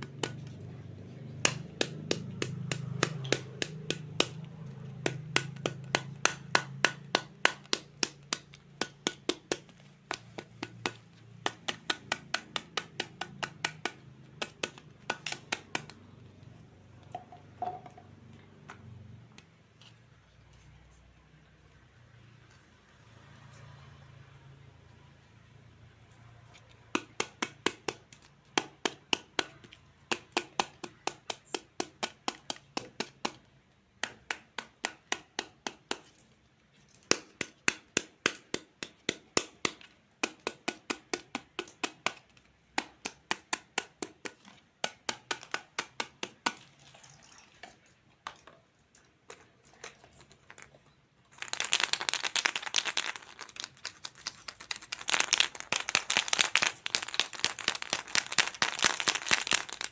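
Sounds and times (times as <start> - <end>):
plastic crinkling: 49.3 - 59.9.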